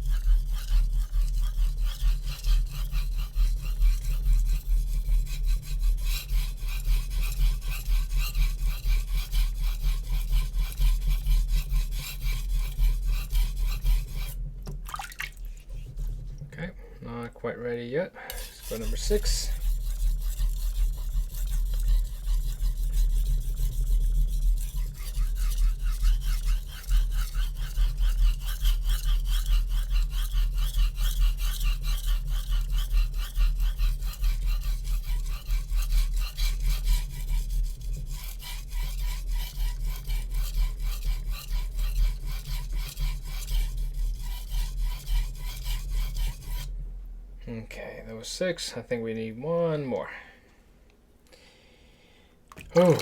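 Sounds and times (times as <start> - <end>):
knife scraping on whetstone: 0.0 - 14.4, 15.5 - 16.5, 18.3 - 46.7.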